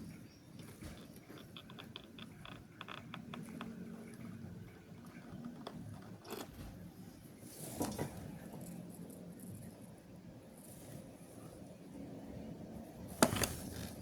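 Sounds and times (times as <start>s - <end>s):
faint clicking and tapping: 0.0s - 6.6s.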